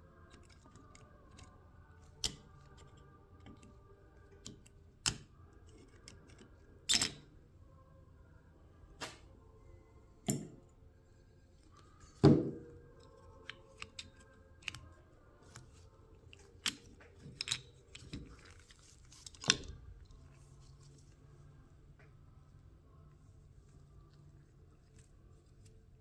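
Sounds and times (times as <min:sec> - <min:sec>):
tools and metal parts clicking: 0:00.3 - 0:03.8, 0:04.4 - 0:07.3, 0:13.0 - 0:14.8, 0:15.5 - 0:19.8.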